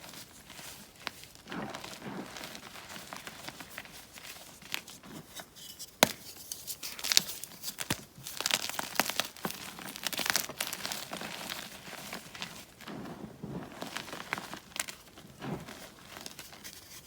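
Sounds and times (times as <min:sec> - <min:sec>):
chalk blocks crunching and snapping: 0:04.7 - 0:12.5.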